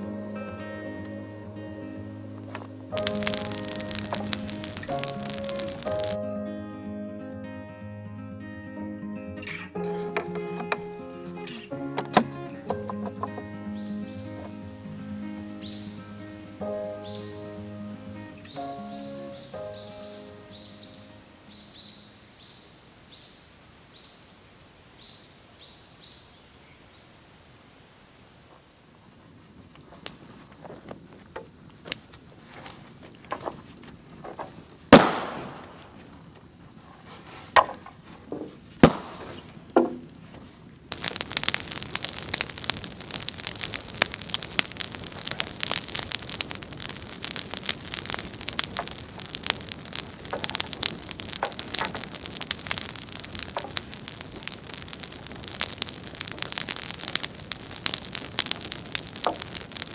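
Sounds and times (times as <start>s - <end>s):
dense crackling patter: 0.0s - 6.2s, 9.8s - 17.3s, 29.3s - 59.9s
high insect buzz: 0.0s - 6.2s, 9.4s - 59.9s
sharp knocks and cracks: 12.0s - 13.5s, 32.6s - 36.2s, 37.5s - 41.4s, 48.1s - 59.9s.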